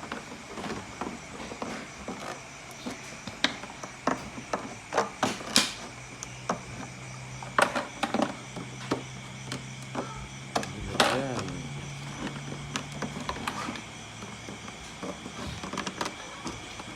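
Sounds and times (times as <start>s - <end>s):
plastic bottle clicking and clattering: 0.1s - 6.7s.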